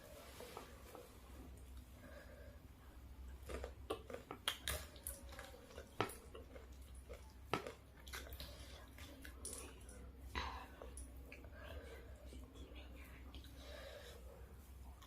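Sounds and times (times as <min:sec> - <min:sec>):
wet chewing: 0:03.2 - 0:13.8.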